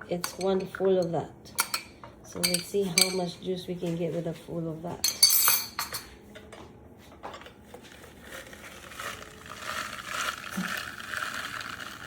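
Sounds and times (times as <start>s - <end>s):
seeds crackling and crunching: 8.2s - 12.0s.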